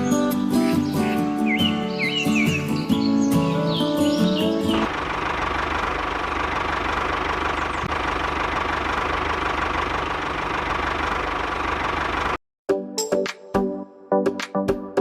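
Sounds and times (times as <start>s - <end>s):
music: 0.0s - 4.9s, 12.7s - 15.0s.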